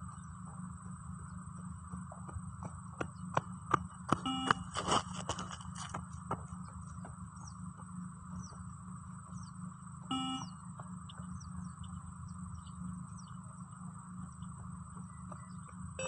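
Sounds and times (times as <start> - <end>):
birds chirping: 0.0 - 4.7, 5.4 - 16.0
steady background hum: 0.0 - 16.0
short electronic beep: 4.2 - 4.7, 10.1 - 10.6.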